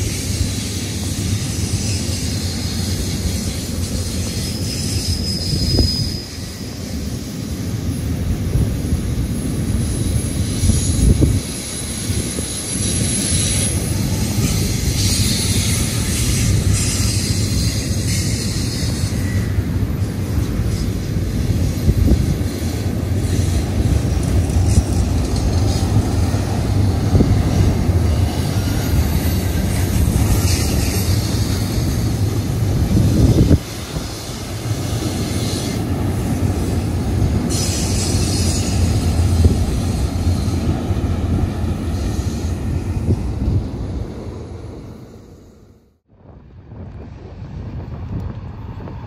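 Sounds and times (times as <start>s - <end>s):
high-pitched wheel squeal: 0.0s - 6.8s
train wheels rumbling on rail: 0.0s - 49.0s.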